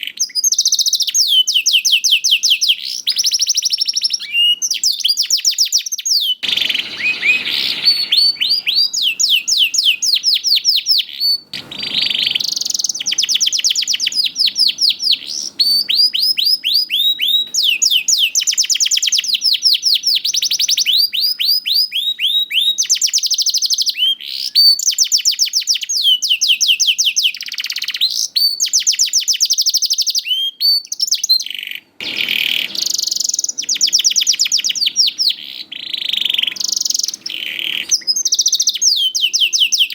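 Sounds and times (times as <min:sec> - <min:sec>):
canary singing in fast trills: 0:00.0 - 0:39.9
brief noisy bursts: 0:11.2 - 0:14.4, 0:32.0 - 0:33.2.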